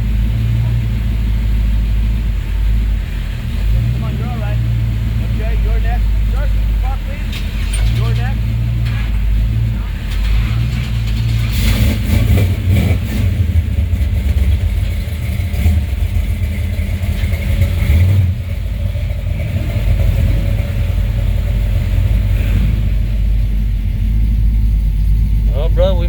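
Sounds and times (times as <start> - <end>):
car engine running: 0.0 - 26.0.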